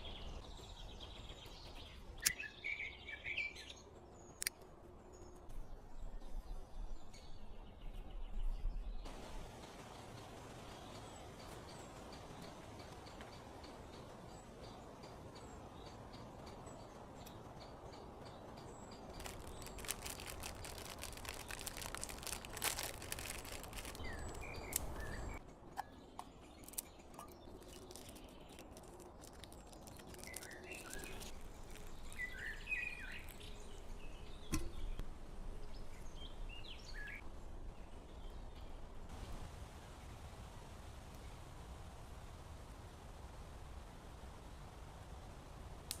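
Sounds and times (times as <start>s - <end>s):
birds chirping: 10.8s - 35.0s
sharp clicks and crackles: 19.1s - 25.4s, 26.6s - 33.5s.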